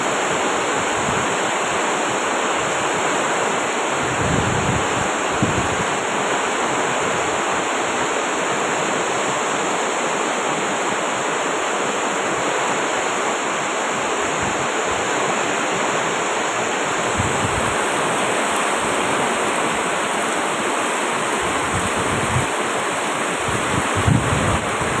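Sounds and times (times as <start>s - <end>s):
heavy rain pouring: 0.0s - 25.0s.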